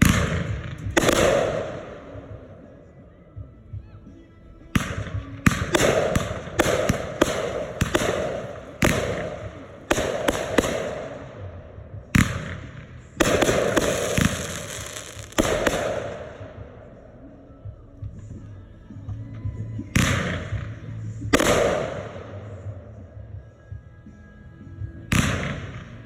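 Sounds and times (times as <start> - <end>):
fireworks bangs: 0.0 - 2.7, 4.8 - 17.0
fireworks crackle: 13.2 - 16.1.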